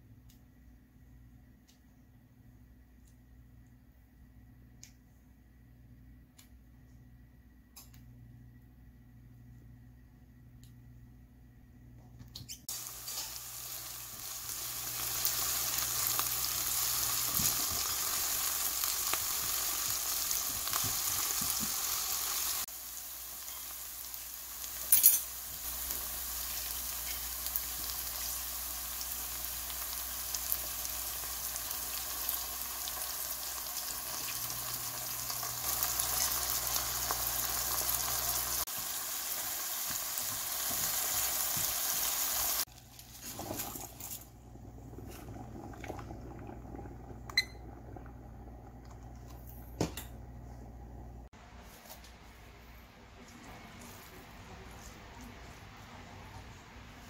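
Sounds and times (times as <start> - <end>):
leeks sizzling in a pan: 12.7 - 44.0.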